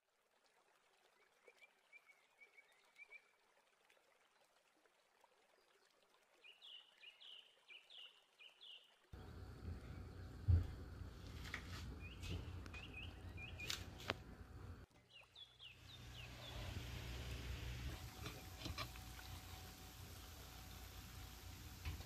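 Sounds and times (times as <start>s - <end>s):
bird chirps: 12.0s - 13.9s
low hiss: 15.6s - 22.0s.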